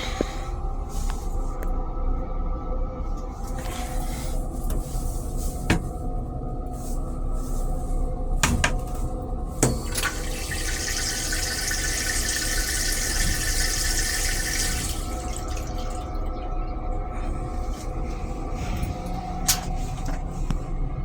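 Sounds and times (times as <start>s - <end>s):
moving train rumble: 0.0s - 21.0s
water rushing: 10.0s - 16.3s.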